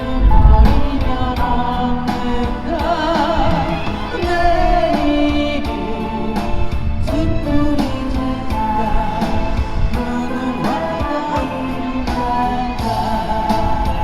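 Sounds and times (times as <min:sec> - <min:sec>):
wind rumble on microphone: 0:00.0 - 0:02.4
instrumental accompaniment: 0:00.0 - 0:14.0
woman singing a ballad: 0:00.0 - 0:14.0.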